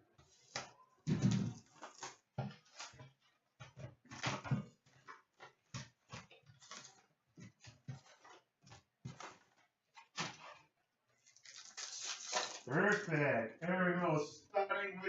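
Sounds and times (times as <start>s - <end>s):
plastic packaging crinkling: 11.2s - 13.2s.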